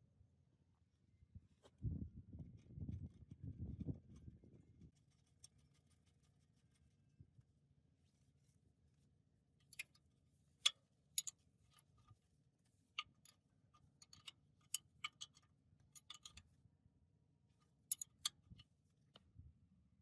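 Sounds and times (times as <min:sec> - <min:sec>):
small hard parts clicking: 0:13.0 - 0:16.4, 0:17.9 - 0:18.6.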